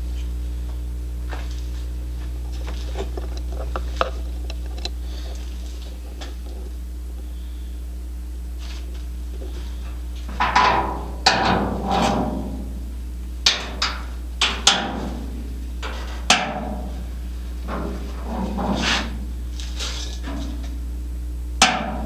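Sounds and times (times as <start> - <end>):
steady low hum: 0.0 - 22.0
sharp metallic knocks and clanks: 10.4 - 12.8, 13.5 - 19.2, 21.6 - 22.0.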